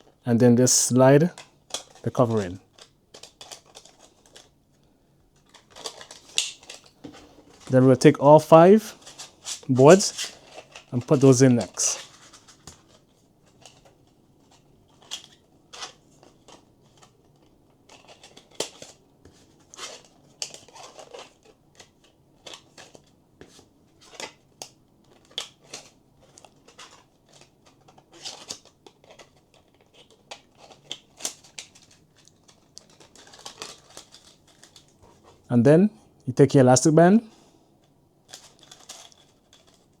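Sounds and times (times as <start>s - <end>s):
plastic clicking and scraping: 2.7s - 4.5s, 9.0s - 35.5s.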